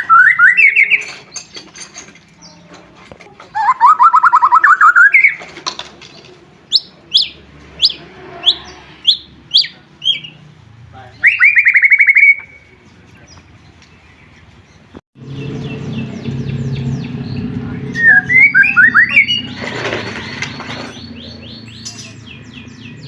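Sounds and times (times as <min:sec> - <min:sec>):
bird whistled notes: 0:00.0 - 0:01.2, 0:03.6 - 0:05.4, 0:06.7 - 0:10.4, 0:11.2 - 0:12.7, 0:15.6 - 0:19.6
bird trilling: 0:00.0 - 0:01.7, 0:03.5 - 0:05.4, 0:06.7 - 0:10.4, 0:11.2 - 0:12.8, 0:15.2 - 0:23.0.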